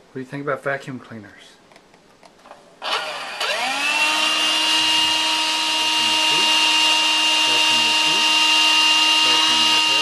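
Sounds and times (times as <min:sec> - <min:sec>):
vacuum cleaner motor whine: 0:02.8 - 0:10.0.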